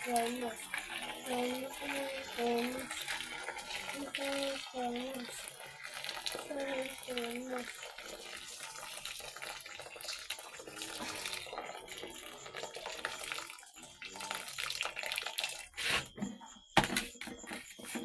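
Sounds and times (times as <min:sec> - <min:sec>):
water running and splashing: 0:00.0 - 0:15.8.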